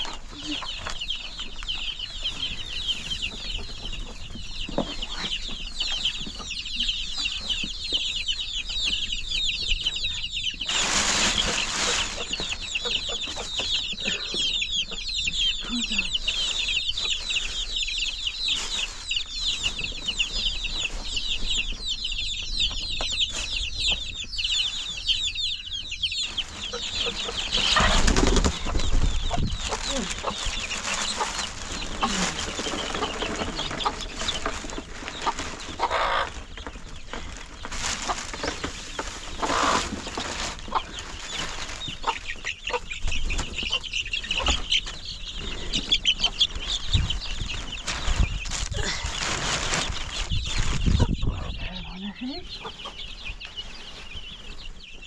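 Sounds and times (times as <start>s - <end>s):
rustling: 10.6s - 14.2s, 15.7s - 25.5s, 26.1s - 51.1s
fowl clucking: 26.6s - 36.4s, 39.4s - 46.5s.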